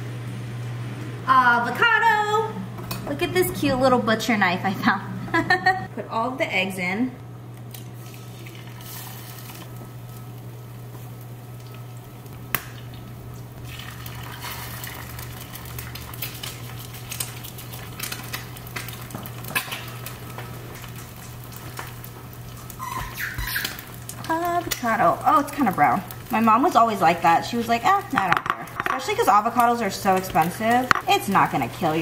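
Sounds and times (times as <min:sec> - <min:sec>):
eggs sizzling in a pan: 0:07.6 - 0:32.0.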